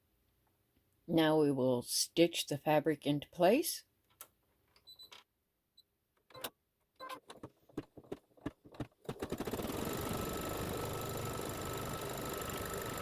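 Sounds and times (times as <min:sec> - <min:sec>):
embroidery machine stitching: 0:08.7 - 0:13.0.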